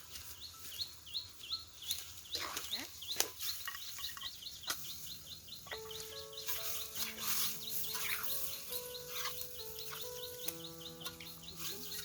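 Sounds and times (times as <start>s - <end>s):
bird rising chirps: 3.8s - 12.0s.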